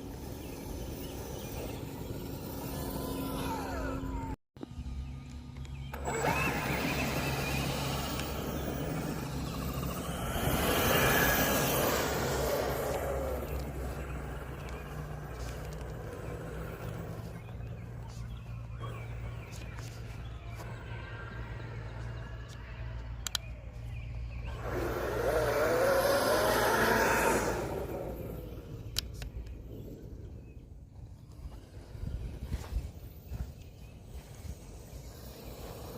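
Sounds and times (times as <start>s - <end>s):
electric ducted fans whining: 0.0s - 35.9s.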